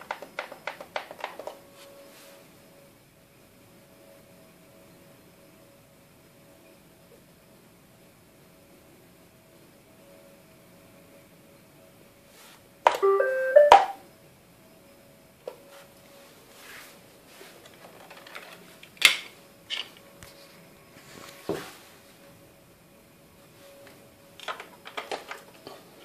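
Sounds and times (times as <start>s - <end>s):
robot vacuum beeping tune: 12.9s - 14.0s.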